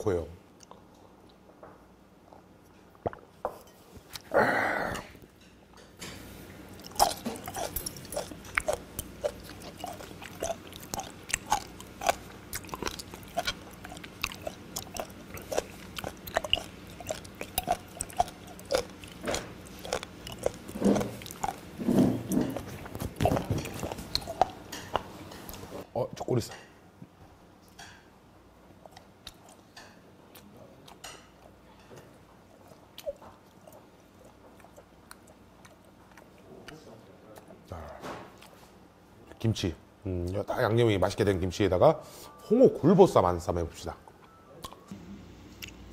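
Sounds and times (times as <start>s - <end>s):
wet chewing and mouth clicks: 6.7s - 25.8s, 28.8s - 31.6s, 32.4s - 37.8s, 44.6s - 45.9s.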